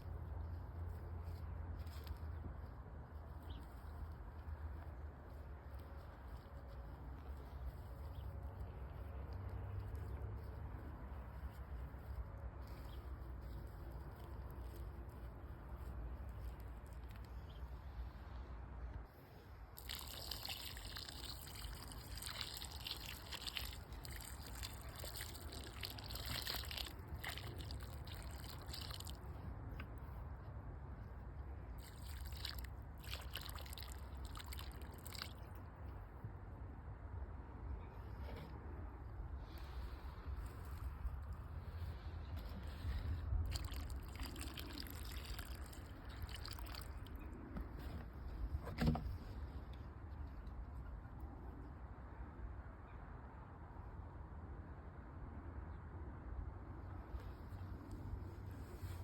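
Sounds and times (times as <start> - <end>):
water pouring and trickling: 19.7 - 29.4, 31.7 - 35.6, 43.4 - 47.2
small crackles: 19.8 - 30.2, 31.7 - 35.9, 40.4 - 47.4.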